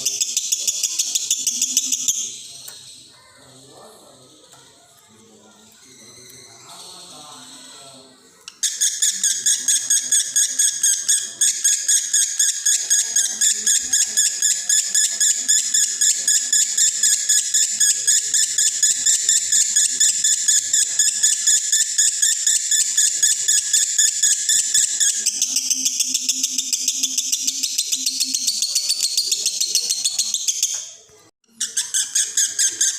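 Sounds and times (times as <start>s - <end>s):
lovebird singing rapid high chirps: 0.0s - 3.1s, 8.5s - 30.8s.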